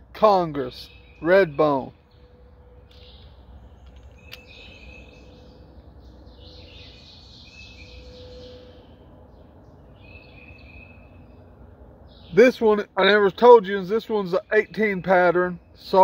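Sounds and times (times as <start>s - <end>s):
birds chirping: 0.0s - 16.0s
low outdoor hum: 0.0s - 16.0s
sharp click: 3.8s - 4.5s.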